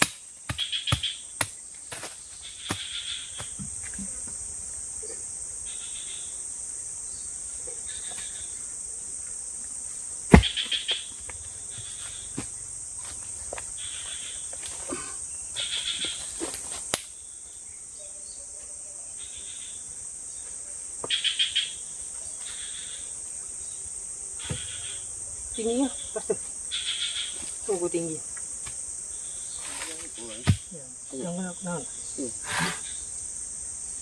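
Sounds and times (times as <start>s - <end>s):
insects droning: 0.0s - 34.0s
pulsed insect chirping: 0.0s - 34.0s
sharp knocks: 10.3s - 10.8s.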